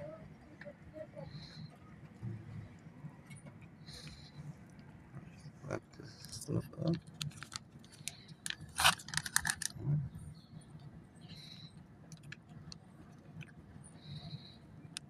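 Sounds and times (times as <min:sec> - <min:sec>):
packaging clicks: 0:07.2 - 0:09.8
packaging rustling: 0:08.5 - 0:09.7.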